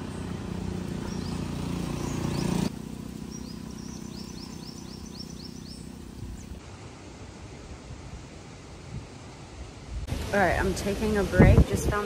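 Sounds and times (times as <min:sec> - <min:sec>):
bird chirping: 0:00.0 - 0:06.6
loud engine-like hum: 0:00.0 - 0:06.6
low motor hum: 0:00.0 - 0:06.8.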